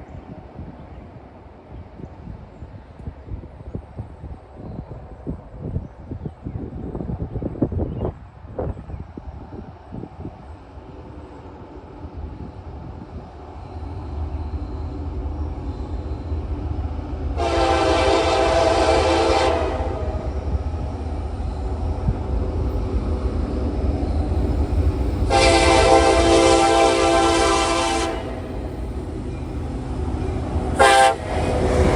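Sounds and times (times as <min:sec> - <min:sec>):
locomotive engine rumble: 0:09.1 - 0:31.9
locomotive air horn blast: 0:17.4 - 0:20.2, 0:25.3 - 0:28.6, 0:30.8 - 0:31.9.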